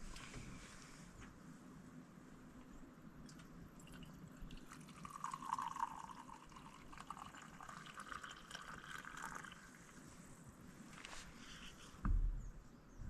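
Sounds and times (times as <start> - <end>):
small clicks and drips: 3.2 - 10.0
water trickling: 3.3 - 10.0.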